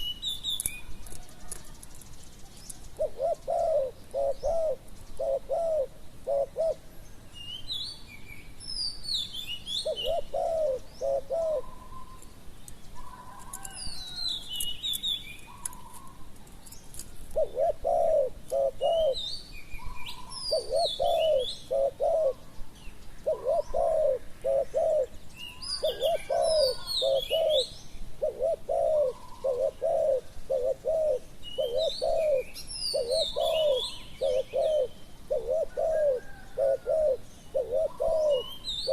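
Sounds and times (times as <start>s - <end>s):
small birds chirping: 0.0s - 38.9s
doves cooing: 2.6s - 7.0s, 9.8s - 12.3s, 17.3s - 22.6s, 23.2s - 38.9s.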